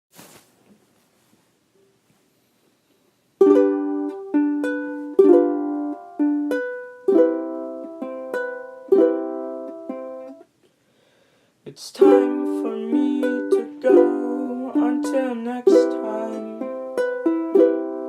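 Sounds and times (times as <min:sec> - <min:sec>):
ukulele strumming chords: 0:03.4 - 0:10.5, 0:12.0 - 0:18.0.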